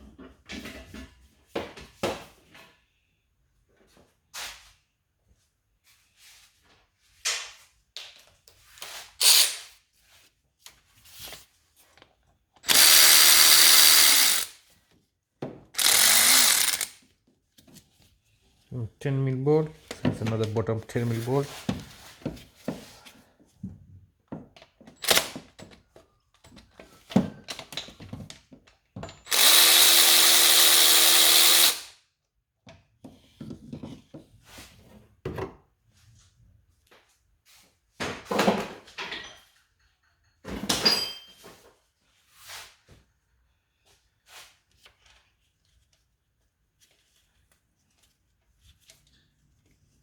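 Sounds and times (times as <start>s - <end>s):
handheld power tool running: 12.6s - 14.6s, 15.8s - 17.0s, 29.3s - 31.9s.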